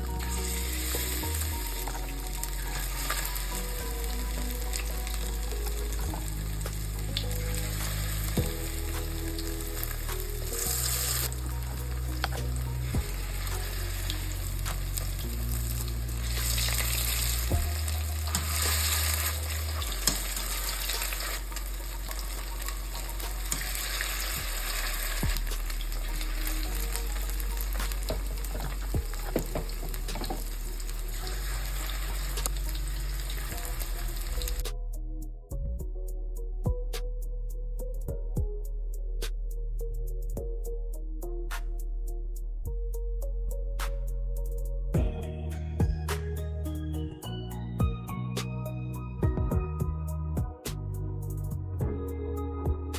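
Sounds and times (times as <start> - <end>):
food sizzling in a pan: 0.1 - 34.6.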